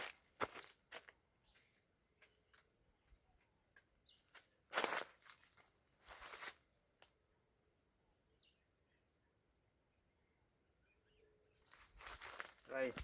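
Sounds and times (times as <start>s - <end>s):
faint bird chirps: 0.5s - 2.6s, 8.1s - 12.0s.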